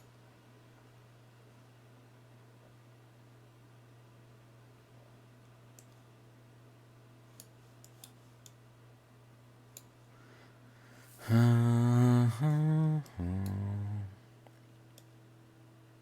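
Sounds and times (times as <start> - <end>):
man humming: 11.1 - 14.2.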